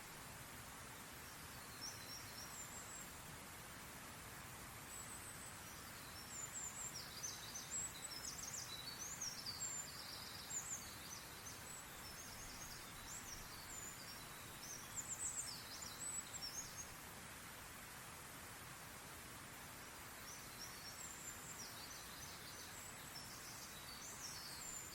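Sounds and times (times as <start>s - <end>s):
soft background hiss: 0.0s - 24.9s
songbirds chirping and trilling: 4.9s - 17.0s, 20.2s - 24.9s.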